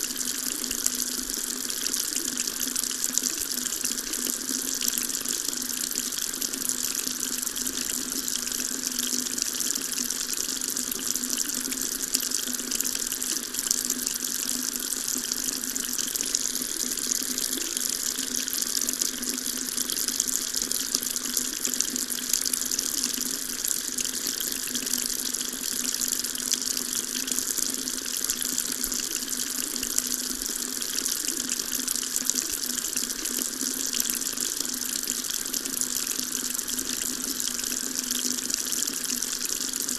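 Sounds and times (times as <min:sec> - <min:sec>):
water tap running: 0:00.0 - 0:39.9.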